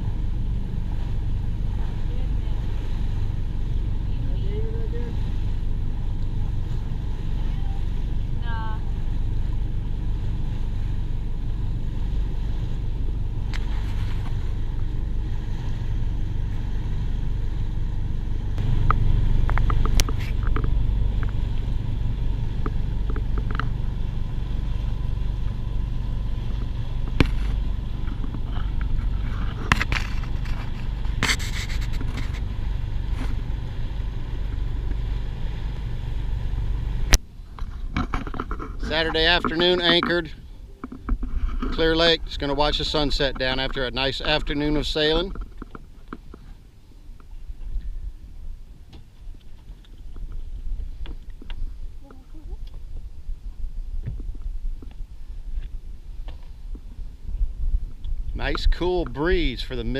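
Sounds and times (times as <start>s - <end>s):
boat engine droning: 0.0s - 59.9s
sharp clicks and knocks: 18.8s - 21.4s, 22.6s - 23.8s.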